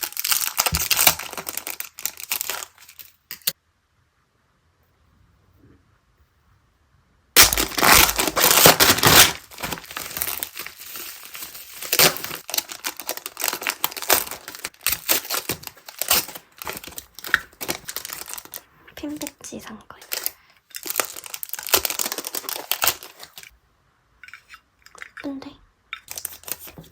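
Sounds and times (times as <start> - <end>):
packaging crinkling and tearing: 0.0 - 3.6, 7.4 - 19.3, 20.0 - 23.5, 26.0 - 26.9.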